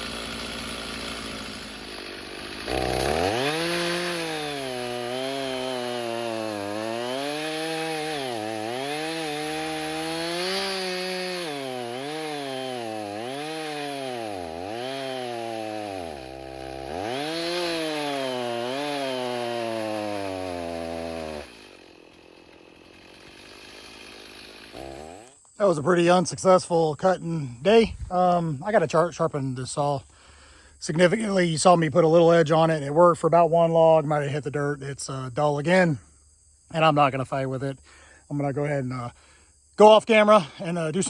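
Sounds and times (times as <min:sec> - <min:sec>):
chainsaw cutting log: 0:00.0 - 0:26.0, 0:40.6 - 0:41.0.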